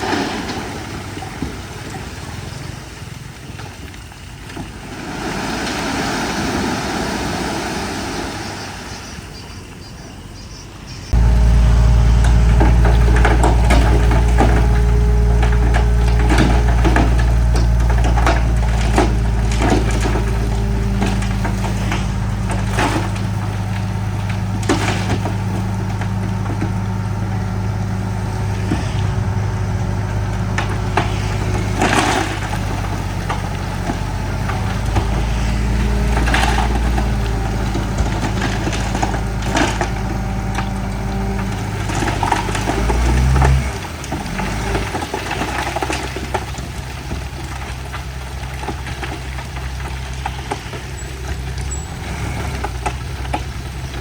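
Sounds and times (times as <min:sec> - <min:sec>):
bulldozer diesel engine running: 0:11.0 - 0:54.0
rock crunching and clattering: 0:11.2 - 0:54.0.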